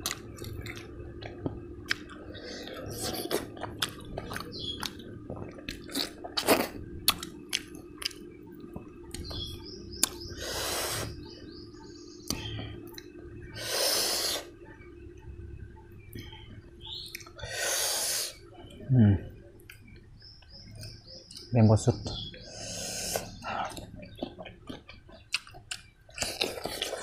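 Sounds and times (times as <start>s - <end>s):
wet chewing and smacks: 0.0s - 10.2s, 16.1s - 17.4s, 23.2s - 27.0s.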